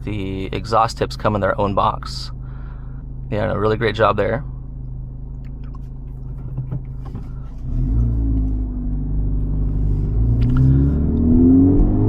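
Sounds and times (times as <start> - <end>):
car engine accelerating: 4.7 - 12.0.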